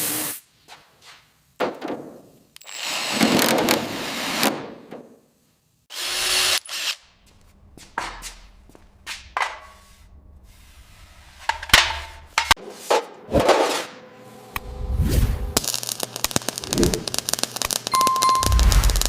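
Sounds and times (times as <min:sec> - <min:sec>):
air hiss: 0:00.0 - 0:00.5.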